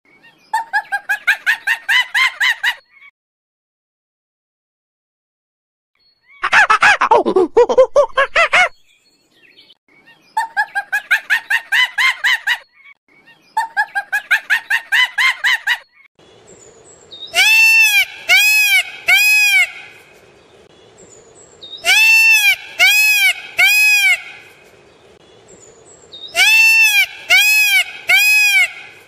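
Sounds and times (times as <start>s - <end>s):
peafowl calls: 17.3s - 20.0s, 21.8s - 24.6s, 26.3s - 29.0s.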